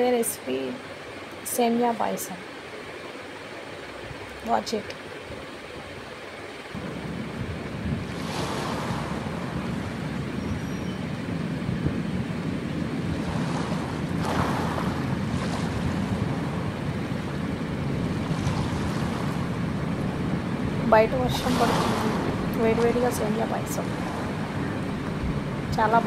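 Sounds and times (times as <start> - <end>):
rain falling: 0.0 - 13.1, 19.4 - 26.0.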